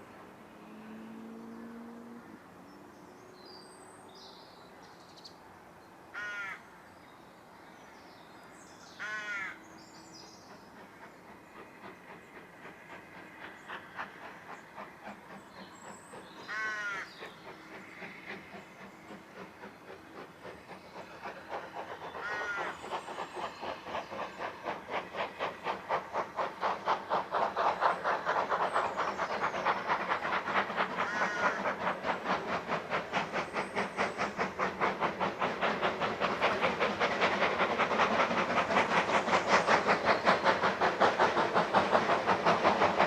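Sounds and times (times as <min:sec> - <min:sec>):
steam train beats: 0:08.7 - 0:43.0.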